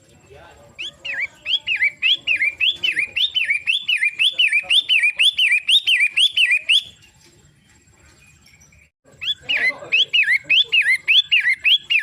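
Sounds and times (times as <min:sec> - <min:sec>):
bird whistling rapid notes: 0:00.8 - 0:07.0, 0:09.2 - 0:12.0.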